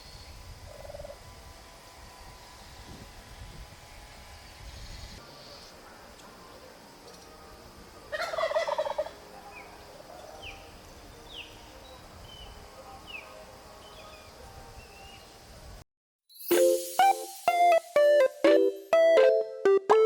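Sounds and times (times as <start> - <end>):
turkey gobbling: 8.2 - 9.2.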